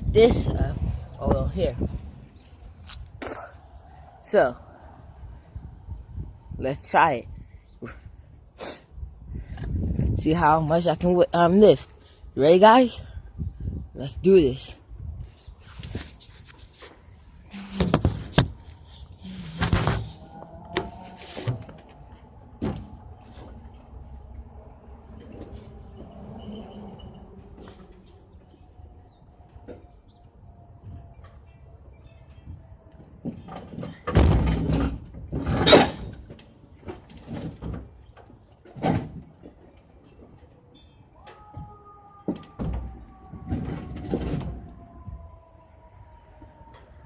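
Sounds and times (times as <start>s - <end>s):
refrigerator scraping and bumping: 17.5s - 22.0s, 33.3s - 36.3s.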